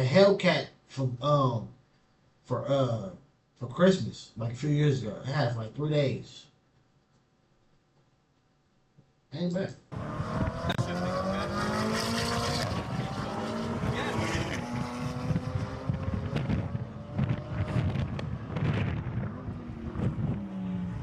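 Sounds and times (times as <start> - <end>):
car engine accelerating hard: 9.9 - 21.0
road and wind noise: 9.9 - 21.0.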